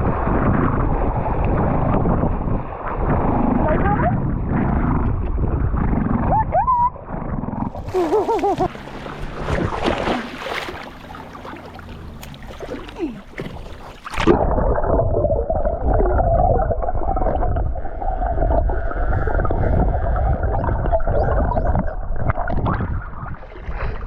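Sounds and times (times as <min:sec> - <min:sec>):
muffled underwater booming: 0:07.0 - 0:23.4
sea water splashing: 0:07.7 - 0:24.0.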